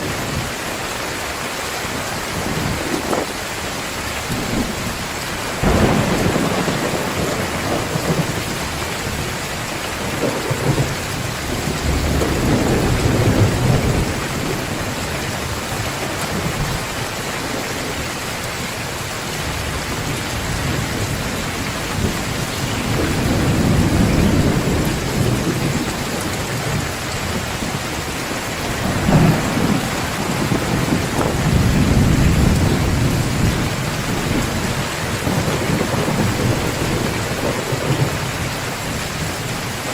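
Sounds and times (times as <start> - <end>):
heavy rain falling: 0.0 - 39.9
thunder rumbling: 4.3 - 18.2, 18.8 - 39.9.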